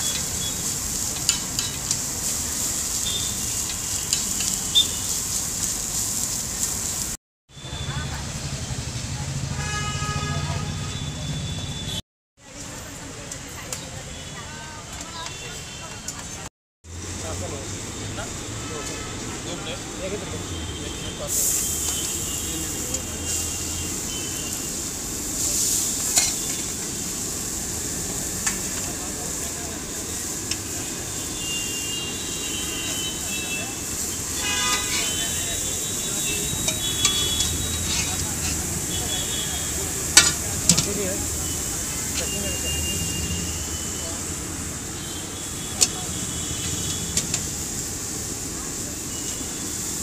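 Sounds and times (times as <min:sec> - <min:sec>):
eggs sizzling on a griddle: 0:00.0 - 0:07.2, 0:21.2 - 0:50.0
metal utensils clinking: 0:01.1 - 0:02.1, 0:26.0 - 0:26.7, 0:36.5 - 0:38.7, 0:40.0 - 0:41.0
metal spatula scraping: 0:25.5 - 0:26.7, 0:34.2 - 0:39.0
metal clicks on griddle: 0:40.2 - 0:40.9.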